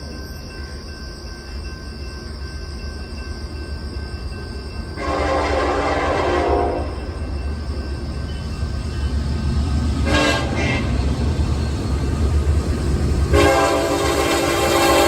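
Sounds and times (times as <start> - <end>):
train rumbling: 0.0 - 15.0
locomotive air horn blast: 5.0 - 7.0, 10.0 - 10.9, 13.3 - 15.0.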